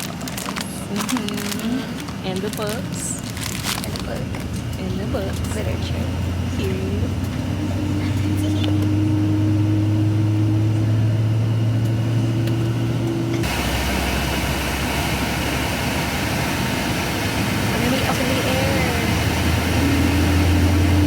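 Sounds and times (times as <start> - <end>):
jet engines humming: 0.0 - 21.0.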